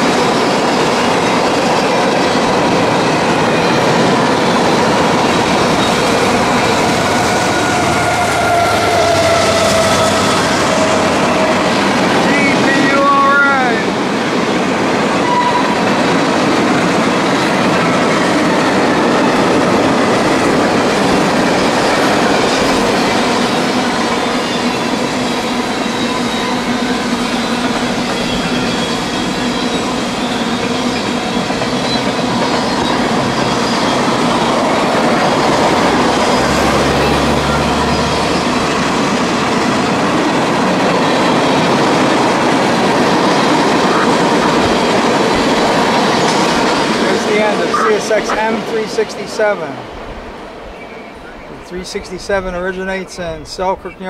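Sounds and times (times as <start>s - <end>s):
train wheels on rails: 0.0s - 54.0s
high-pitched wheel squeal: 6.9s - 11.8s, 15.2s - 15.8s, 47.6s - 48.4s.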